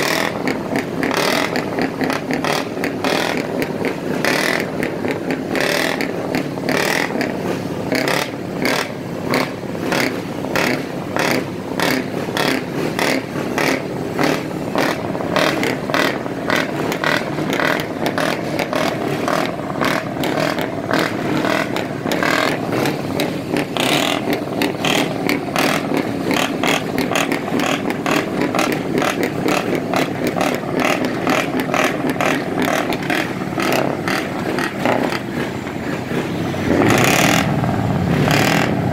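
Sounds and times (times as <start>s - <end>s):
diesel truck engine rumble: 0.0s - 38.9s
exhaust cracks: 0.0s - 38.9s.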